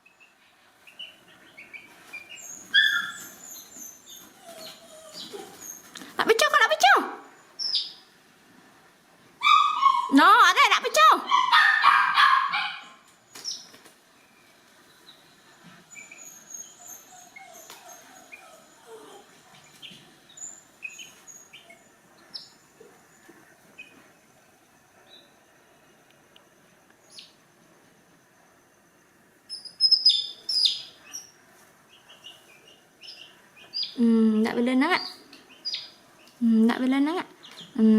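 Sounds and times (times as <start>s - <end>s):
faint high bird chirps: 0.0s - 5.9s, 7.2s - 8.1s, 13.3s - 24.1s, 27.0s - 27.4s, 29.5s - 34.2s, 34.8s - 36.4s
dog barking: 9.4s - 10.2s, 11.2s - 13.0s.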